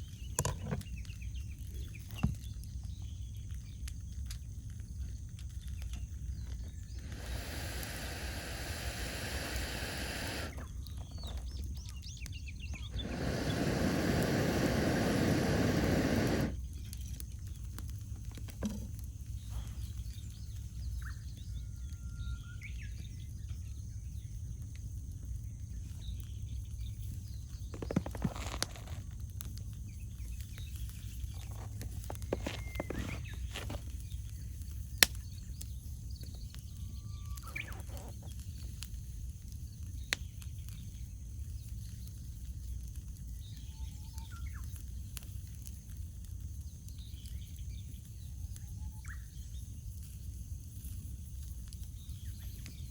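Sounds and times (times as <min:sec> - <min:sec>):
campfire crackling and popping: 0:00.0 - 0:22.0, 0:22.6 - 0:52.9
rushing noise: 0:12.9 - 0:16.6.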